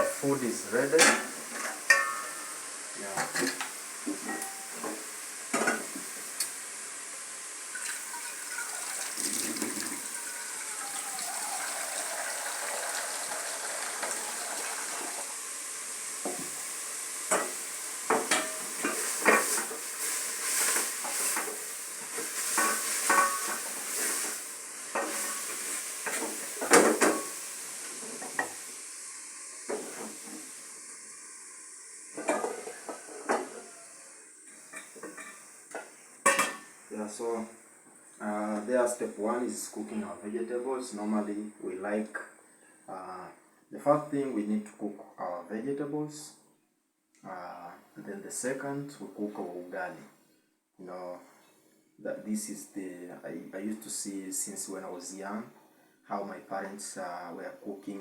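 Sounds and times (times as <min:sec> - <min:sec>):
pots and utensils clinking: 0:00.0 - 0:02.6, 0:03.2 - 0:06.0, 0:07.7 - 0:15.2, 0:17.3 - 0:27.4, 0:32.2 - 0:33.8, 0:34.6 - 0:36.8
steady hiss: 0:00.0 - 0:46.4, 0:47.2 - 0:58.0.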